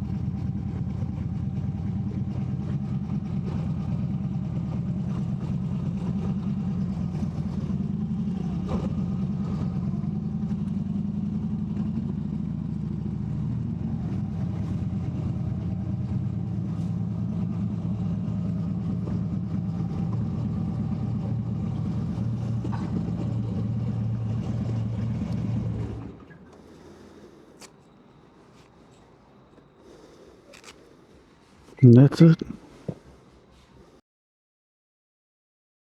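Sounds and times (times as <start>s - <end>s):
motorcycle engine idling: 0.0s - 20.3s.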